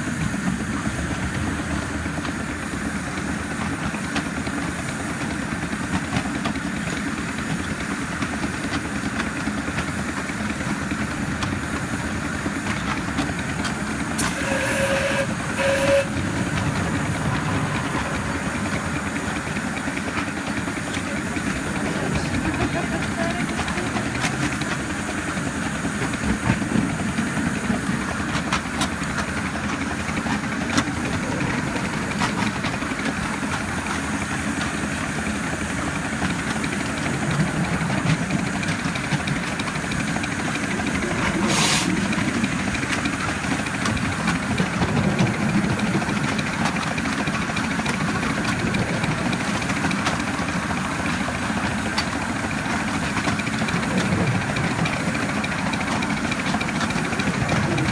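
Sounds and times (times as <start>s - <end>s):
steam hissing: 0.0s - 44.8s
steam locomotive rumble: 0.0s - 57.9s.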